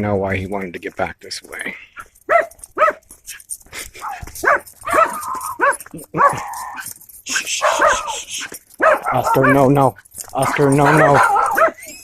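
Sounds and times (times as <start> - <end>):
dog yapping: 2.3 - 3.0, 4.0 - 9.7, 10.4 - 12.0.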